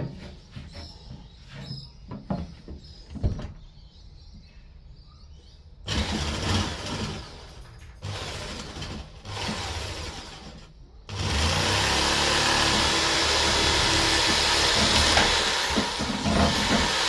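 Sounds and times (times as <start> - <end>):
electric power tool running: 5.9 - 17.0.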